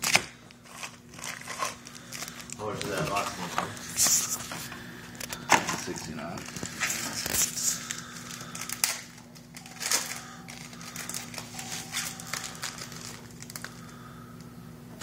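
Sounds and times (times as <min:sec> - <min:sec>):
card pack wrappers crinkling: 0:00.0 - 0:04.6, 0:05.2 - 0:14.1
faint steady hum: 0:00.0 - 0:15.0.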